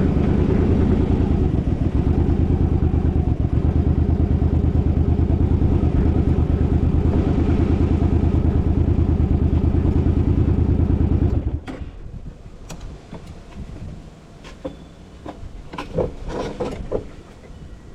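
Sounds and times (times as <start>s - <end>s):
engine running: 0.0s - 12.8s.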